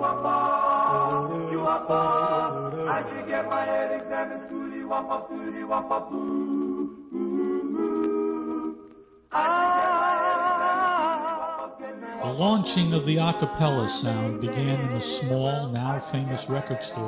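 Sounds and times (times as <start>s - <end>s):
a cappella group singing harmony: 0.0s - 17.0s
low bass vocal part: 12.2s - 17.0s.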